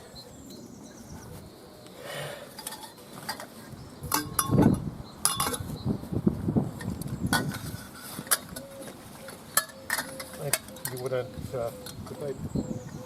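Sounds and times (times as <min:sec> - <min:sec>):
frame parts knocking and clinking: 0:02.6 - 0:05.7, 0:06.8 - 0:12.2.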